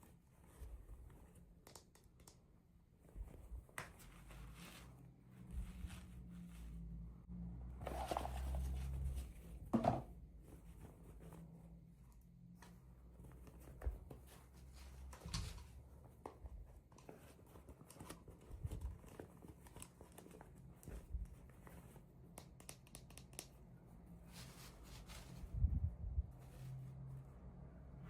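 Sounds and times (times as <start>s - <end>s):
soft clicks and taps of toys: 1.2s - 4.3s, 12.1s - 23.8s.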